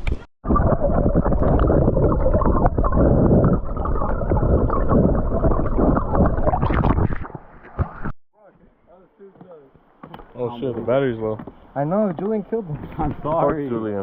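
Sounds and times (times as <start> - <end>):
muffled rumbling on microphone: 0.0 - 8.1.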